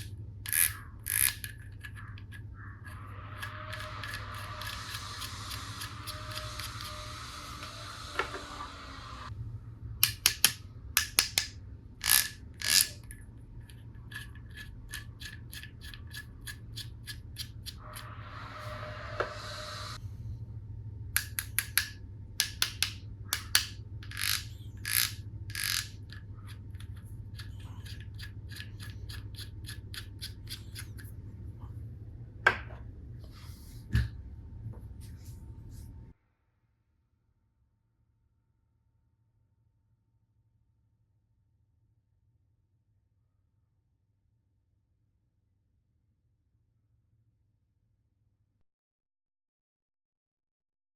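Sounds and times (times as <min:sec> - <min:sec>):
plastic toy pieces clicking: 0:00.0 - 0:02.3, 0:10.0 - 0:17.8, 0:21.2 - 0:31.0
low steady hum: 0:00.0 - 0:36.2
steady noise: 0:02.9 - 0:10.0.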